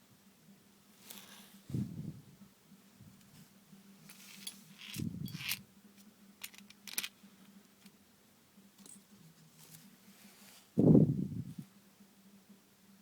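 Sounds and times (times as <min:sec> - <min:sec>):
steady low hum: 0:00.0 - 0:13.0
watch clicks and scrapes: 0:04.1 - 0:05.6.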